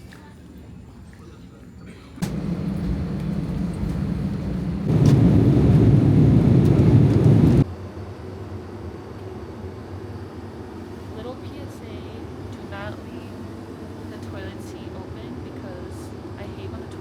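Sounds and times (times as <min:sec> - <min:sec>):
vacuum toilet flushing: 0:02.2 - 0:06.8
aircraft cabin hum: 0:02.2 - 0:07.6.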